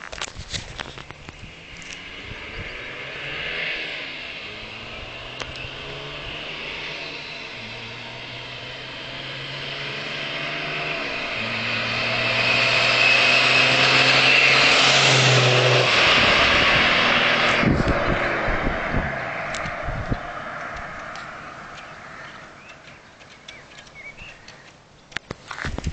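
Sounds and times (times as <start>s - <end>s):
wind noise: 0.0s - 3.8s, 15.1s - 22.4s, 25.3s - 25.9s
diesel engine under load: 0.7s - 24.6s.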